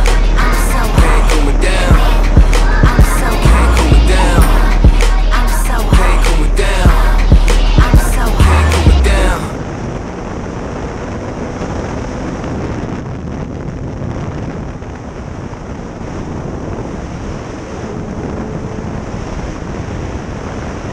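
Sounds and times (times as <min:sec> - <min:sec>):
faint engine hum: 0:00.0 - 0:20.9
wind rushing over microphone: 0:00.0 - 0:20.9.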